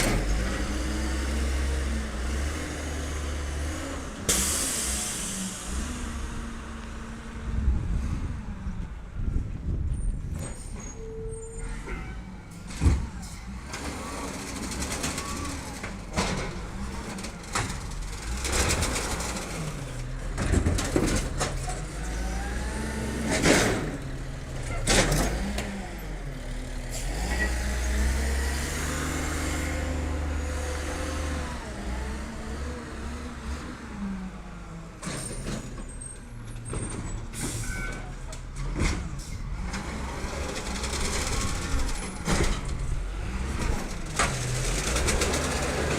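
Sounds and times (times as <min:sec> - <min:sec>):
garbage truck engine: 0:00.0 - 0:45.9
air brake hisses: 0:04.3 - 0:06.6.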